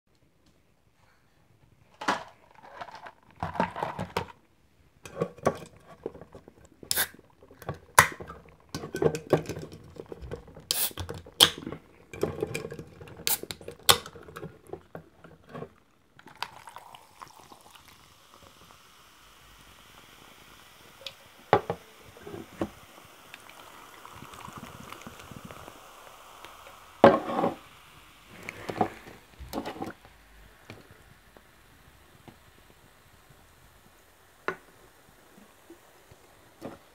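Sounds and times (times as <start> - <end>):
drink containers clicking and knocking: 2.0 - 4.4, 7.5 - 16.7
cola fizzing as poured: 5.0 - 36.9.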